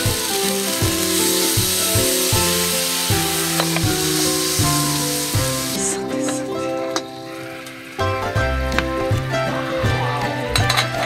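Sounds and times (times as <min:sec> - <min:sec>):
food sizzling in a skillet: 0:00.0 - 0:08.4
background music with steady beat: 0:00.0 - 0:11.0.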